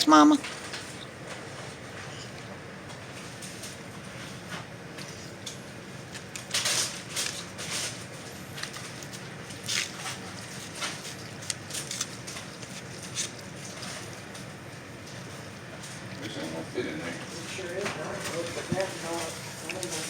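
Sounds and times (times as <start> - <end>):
dog eating with wet smacks: 8.0 - 20.0.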